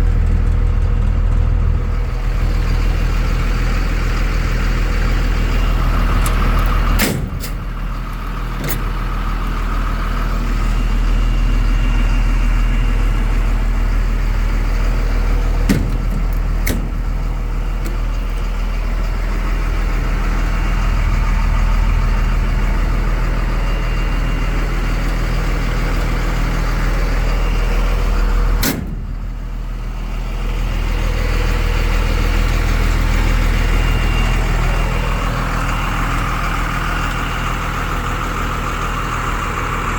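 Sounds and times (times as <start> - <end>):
diesel engine idling: 0.0 - 39.9
sharp engine knocks: 6.1 - 9.2, 15.2 - 18.6, 28.5 - 29.5.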